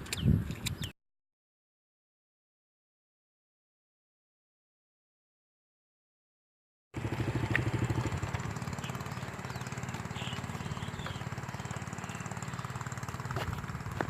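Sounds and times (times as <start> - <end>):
small engine chugging: 7.0 - 14.0.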